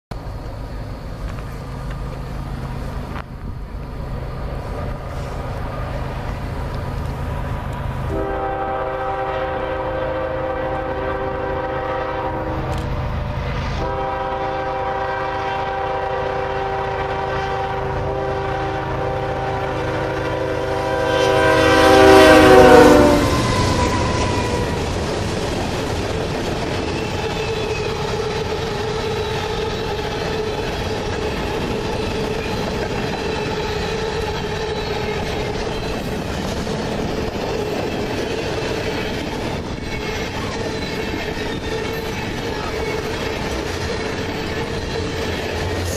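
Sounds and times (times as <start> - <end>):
diesel locomotive engine rumble: 0.1 - 45.9
train horn blasts: 8.0 - 13.1, 13.7 - 24.8.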